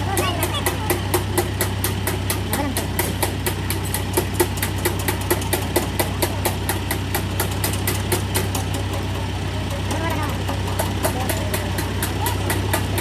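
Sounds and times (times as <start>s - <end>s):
bulldozer diesel engine idling: 0.0s - 13.0s.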